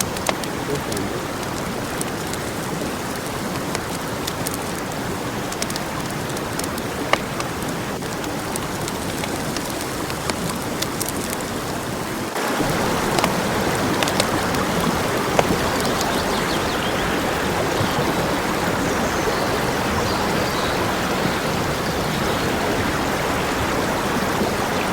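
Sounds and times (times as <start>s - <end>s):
food sizzling with pops: 0.0s - 19.0s.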